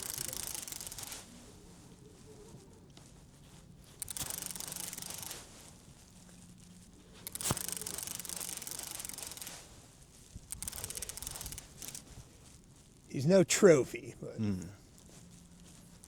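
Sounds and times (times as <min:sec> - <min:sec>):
fishing reel whirring clicks: 0:00.0 - 0:01.3, 0:03.8 - 0:06.3, 0:07.1 - 0:09.7, 0:10.4 - 0:12.3.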